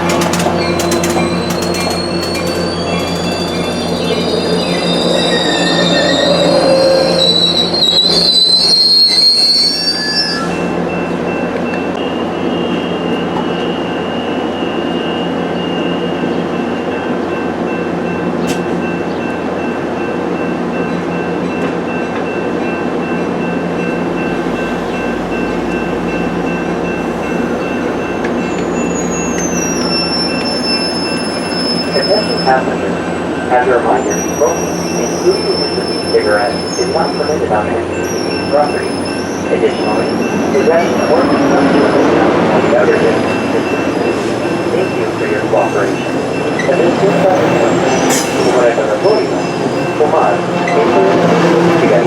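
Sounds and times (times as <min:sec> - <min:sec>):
train wheels squealing: 0:00.0 - 0:10.7, 0:23.8 - 0:32.7, 0:34.1 - 0:42.2
train rumbling on rails: 0:00.0 - 0:52.0.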